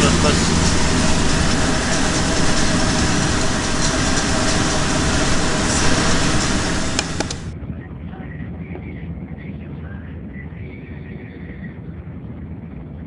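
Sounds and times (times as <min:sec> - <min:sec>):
diesel engine idling: 0:00.0 - 0:07.6.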